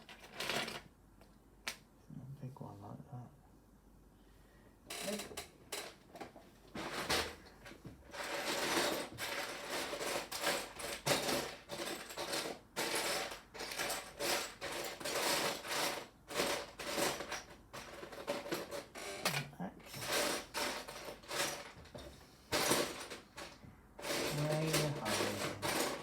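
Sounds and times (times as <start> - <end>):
plastic bricks clattering: 22.5 - 26.0.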